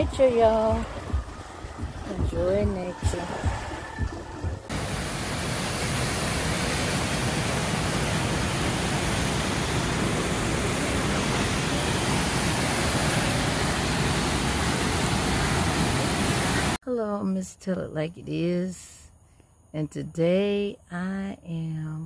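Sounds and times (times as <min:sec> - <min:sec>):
waterfall roaring: 0:04.7 - 0:16.8.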